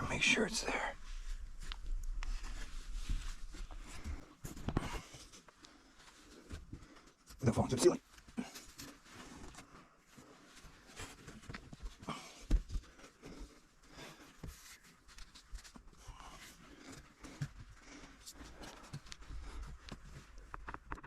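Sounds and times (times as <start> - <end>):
scuffing and rustling: 1.0 - 6.7.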